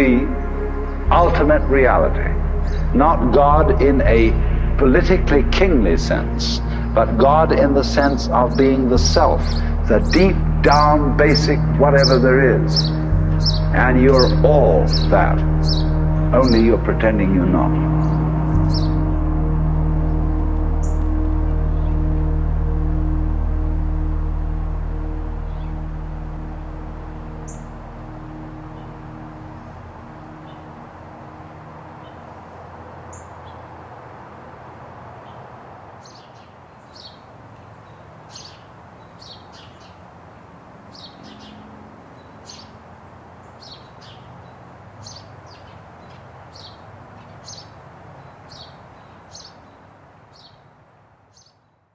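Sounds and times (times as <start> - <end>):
low ambient music tones: 0.0 - 34.0.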